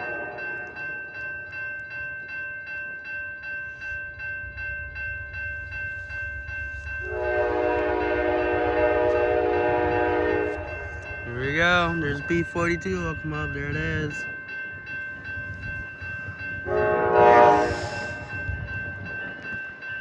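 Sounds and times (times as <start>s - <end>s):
locomotive bell ringing: 0.0s - 20.0s
rumble of engine and train: 3.0s - 20.0s
train air horn blast: 7.0s - 10.7s, 16.7s - 18.3s.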